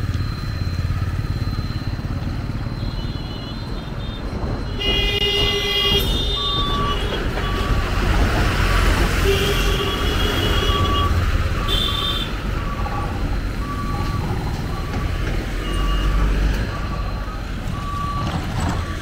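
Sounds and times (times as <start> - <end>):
traffic engines rumbling: 0.0 - 19.0
vehicle horns honking: 2.8 - 7.8, 9.1 - 12.5.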